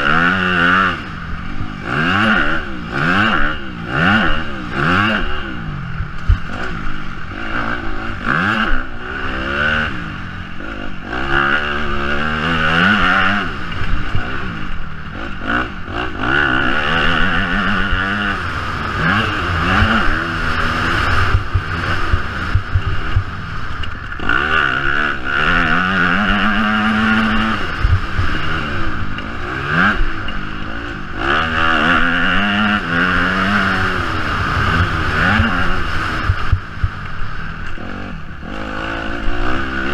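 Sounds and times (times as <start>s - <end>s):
motocross bike engine revving: 0.0s - 39.9s
bike knocking and rattling: 6.0s - 6.8s, 20.9s - 24.6s.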